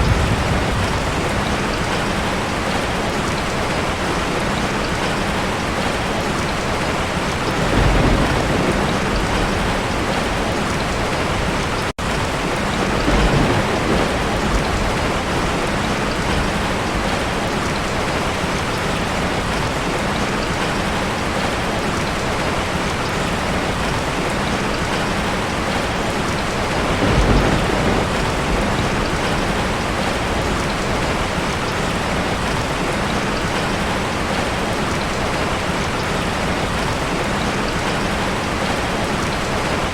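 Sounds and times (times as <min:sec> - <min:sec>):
low thunder rumbling: 0:00.0 - 0:03.5, 0:07.1 - 0:19.6, 0:24.4 - 0:33.2
heavy rain pouring: 0:00.0 - 0:39.9.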